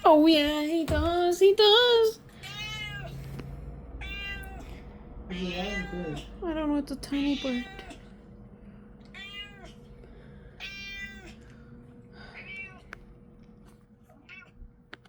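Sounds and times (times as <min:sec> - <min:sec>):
cat meowing: 0:02.4 - 0:03.2, 0:04.0 - 0:04.7, 0:05.3 - 0:06.4, 0:07.2 - 0:08.1, 0:09.1 - 0:09.9, 0:10.6 - 0:11.4, 0:12.4 - 0:12.9, 0:14.1 - 0:14.6.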